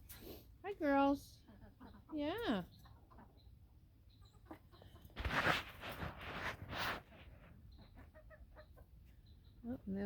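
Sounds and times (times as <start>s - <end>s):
hens clucking softly: 1.3s - 5.5s, 7.2s - 9.4s
rough rustling and scraping: 5.0s - 8.2s.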